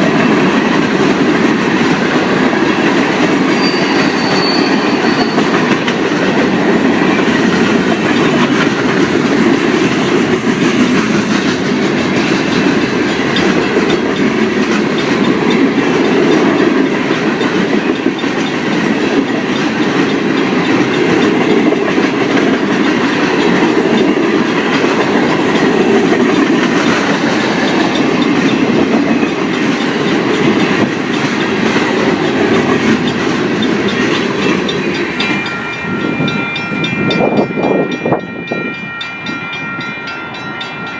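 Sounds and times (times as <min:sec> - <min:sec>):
clickety-clack over rail joints: 0:00.0 - 0:40.9
train wheels rumbling on rail: 0:00.0 - 0:40.9
wind on microphone: 0:18.7 - 0:39.9.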